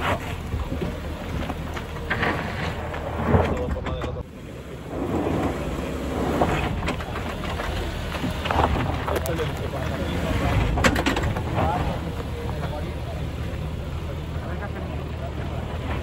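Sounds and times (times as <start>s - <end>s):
off-road vehicle engine running: 0.0s - 16.0s.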